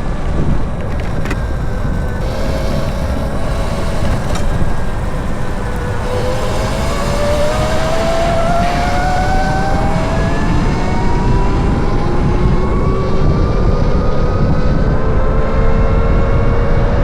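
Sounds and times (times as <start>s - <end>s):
electric motorcycle motor whining: 0.0s - 13.6s
wind rumble on microphone: 0.0s - 17.0s.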